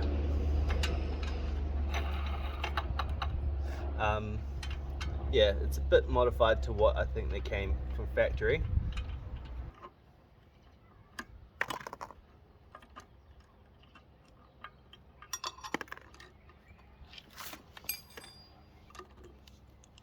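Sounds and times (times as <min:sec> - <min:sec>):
metal parts clattering: 0:11.6 - 0:16.4, 0:17.2 - 0:19.4
metal tools clicking and clinking: 0:12.7 - 0:16.6, 0:17.2 - 0:20.0.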